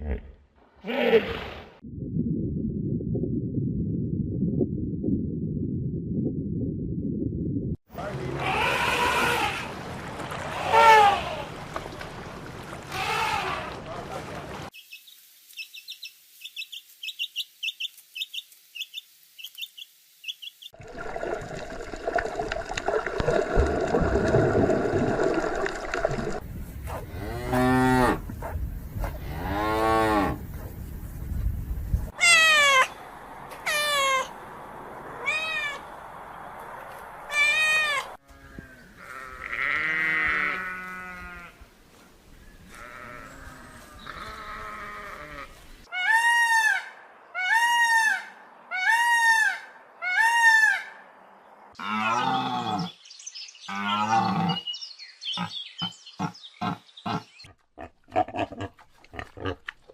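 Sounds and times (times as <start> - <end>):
bleating calls: 8.1 - 9.7, 12.9 - 14.0, 32.2 - 33.0, 37.3 - 41.6, 42.7 - 46.7.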